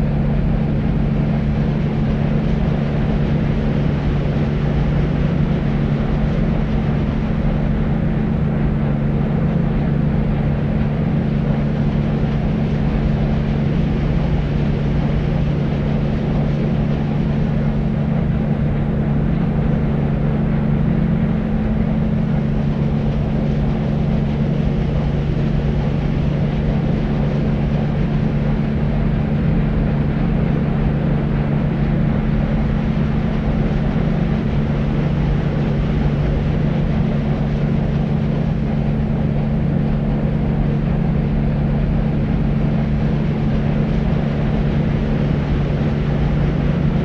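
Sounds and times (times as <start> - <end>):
deep white noise: 0.0 - 47.0
low drone: 0.0 - 47.0.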